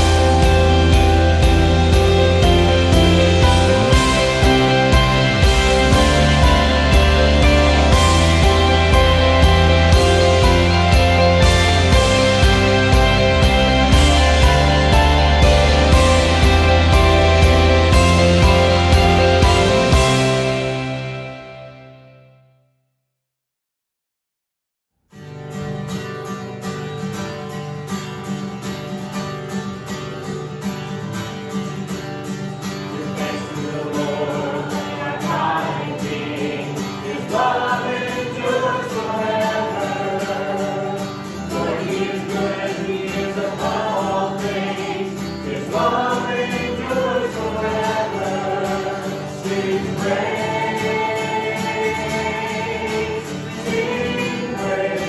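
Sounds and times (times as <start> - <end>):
group of people singing: 0.0 - 21.2, 32.9 - 55.0
instrumental worship music: 0.0 - 22.1, 32.7 - 55.0.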